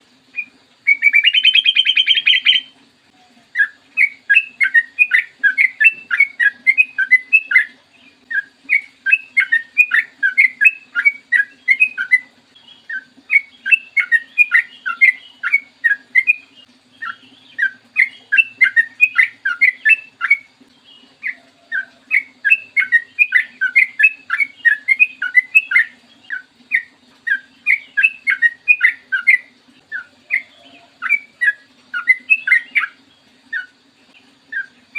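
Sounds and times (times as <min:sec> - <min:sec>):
faint low hum: 0:00.0 - 0:34.9
bird chirping song: 0:00.2 - 0:34.9.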